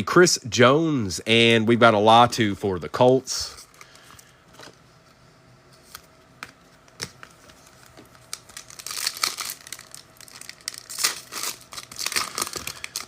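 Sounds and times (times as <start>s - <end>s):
foil wrapper crinkling and tearing: 7.6s - 13.0s.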